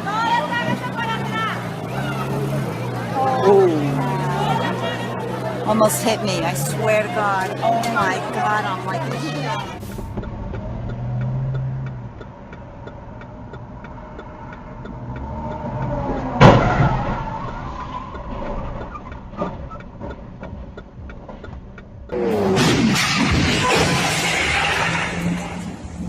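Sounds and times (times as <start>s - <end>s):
car engine: 0.0s - 26.0s
road noise: 0.0s - 26.0s
sudden loud bang: 22.3s - 25.4s.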